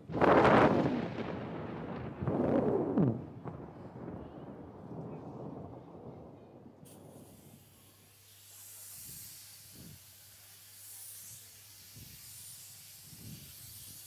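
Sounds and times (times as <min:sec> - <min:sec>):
fog machine hissing: 0:06.9 - 0:14.0.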